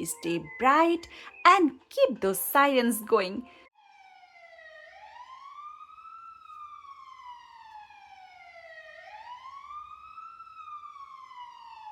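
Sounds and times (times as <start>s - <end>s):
emergency siren wailing: 3.5s - 11.9s.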